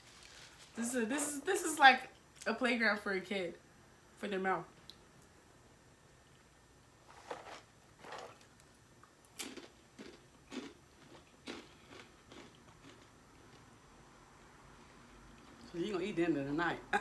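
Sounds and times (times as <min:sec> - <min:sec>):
person crunching corn snacks: 0:07.1 - 0:08.5, 0:09.3 - 0:13.6.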